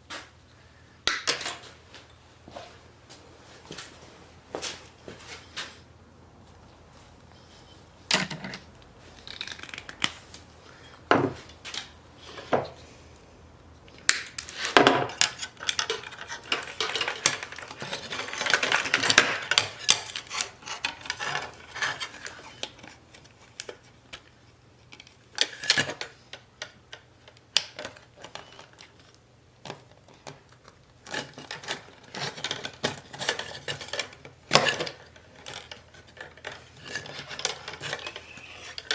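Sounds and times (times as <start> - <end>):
metal tools clinking: 14.8 - 22.2.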